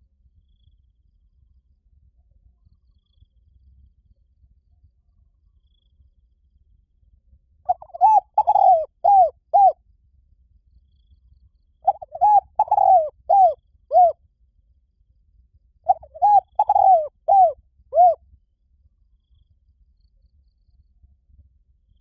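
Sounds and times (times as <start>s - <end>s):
dove cooing: 7.7s - 9.8s, 11.8s - 14.2s, 15.9s - 18.2s.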